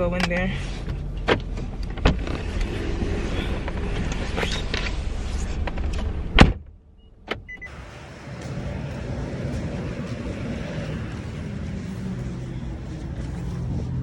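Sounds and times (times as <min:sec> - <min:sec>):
car noise: 0:00.0 - 0:14.0.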